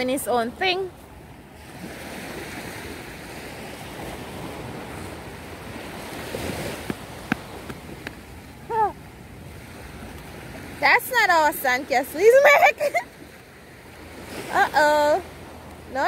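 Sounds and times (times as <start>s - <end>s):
surf washing ashore: 0.0s - 16.0s
high-pitched voice: 8.7s - 9.0s.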